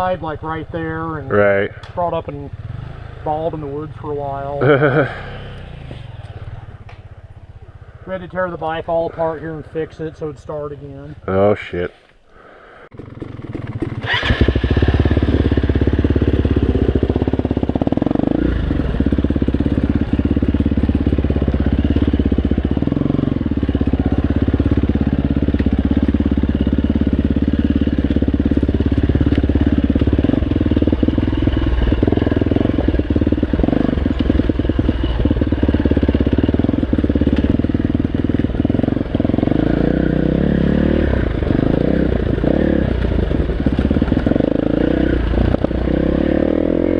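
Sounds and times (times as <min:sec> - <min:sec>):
dirt bike engine under load: 0:12.9 - 0:39.4.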